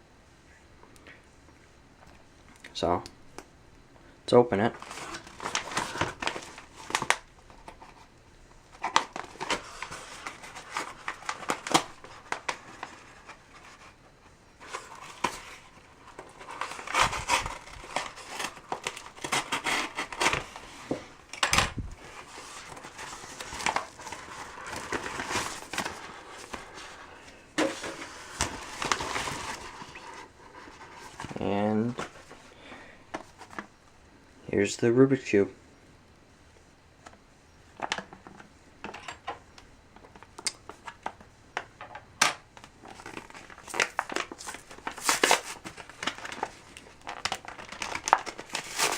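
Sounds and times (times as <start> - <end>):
packaging crinkling and scraping: 4.7 - 8.1, 8.7 - 33.7, 42.6 - 48.9.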